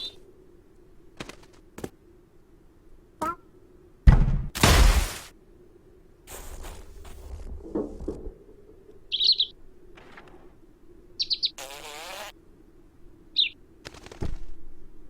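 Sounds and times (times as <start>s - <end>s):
small bird chirping: 0.0s - 0.2s, 9.1s - 9.6s, 11.2s - 12.3s, 13.3s - 13.6s
rasping buzz: 11.6s - 12.4s.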